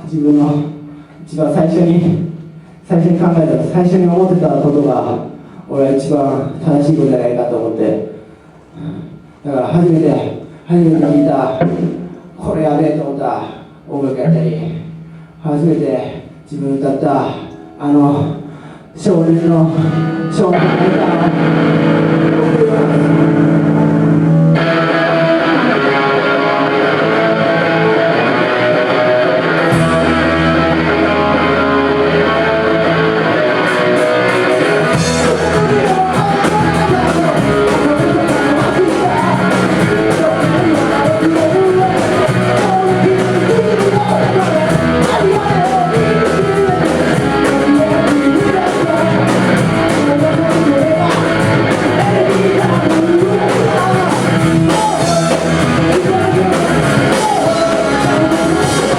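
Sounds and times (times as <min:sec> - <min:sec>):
drums: 0:00.0 - 0:07.4, 0:08.0 - 0:58.9
bass guitar: 0:16.9 - 0:58.9
electric guitar: 0:19.6 - 0:58.9
person singing: 0:19.7 - 0:58.9.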